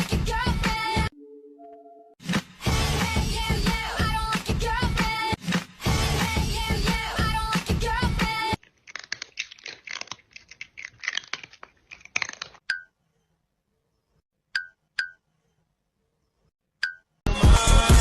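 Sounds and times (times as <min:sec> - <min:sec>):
music: 0:00.0 - 0:08.6, 0:17.3 - 0:18.0
crunching chews: 0:08.6 - 0:12.6.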